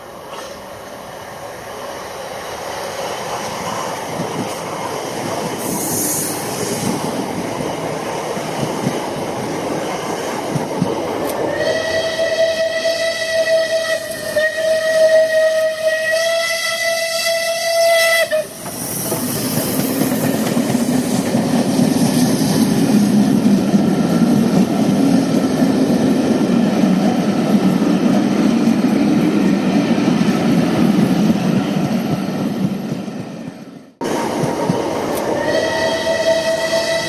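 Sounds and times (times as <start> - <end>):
steam whistle blast: 11.5 - 19.0, 35.4 - 37.0.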